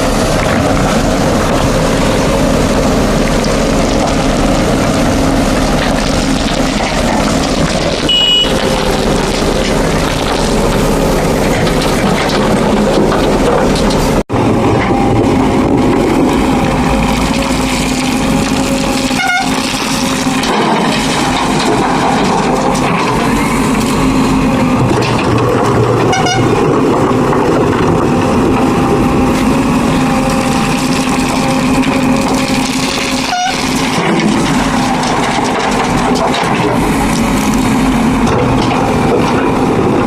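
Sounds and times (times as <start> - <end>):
backhoe loader diesel engine: 0.0 - 40.0.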